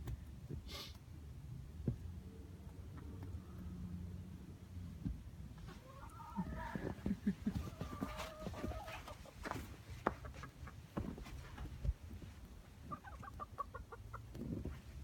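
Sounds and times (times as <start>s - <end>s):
hens clucking: 5.6s - 14.7s.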